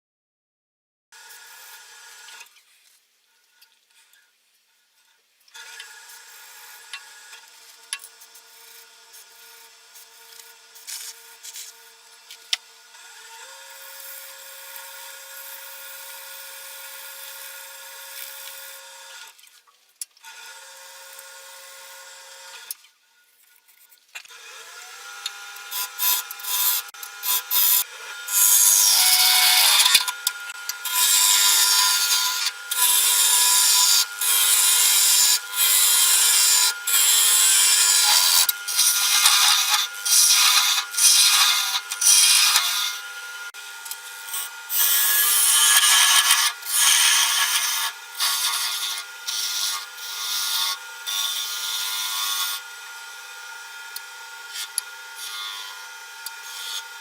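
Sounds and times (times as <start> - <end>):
wood lathe motor whine: 24.3 - 57.0
tool rasping spinning wood: 24.9 - 52.7.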